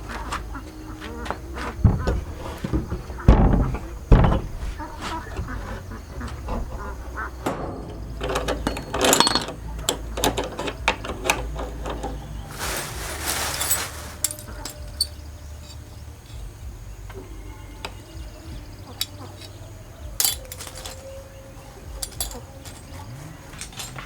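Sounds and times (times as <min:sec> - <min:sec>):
tools knocking and clicking: 0:00.1 - 0:12.3
hissing scrape: 0:12.5 - 0:15.1.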